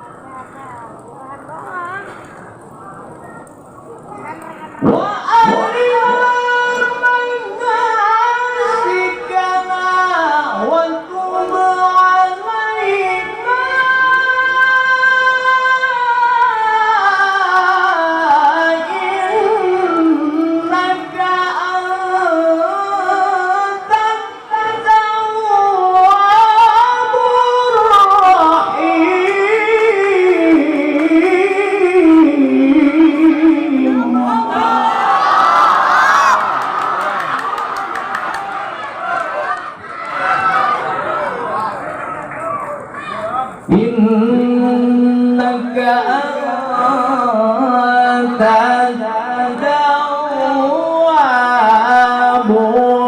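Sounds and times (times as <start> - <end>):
man reciting in melismatic chant: 4.8 - 35.0, 43.4 - 53.0.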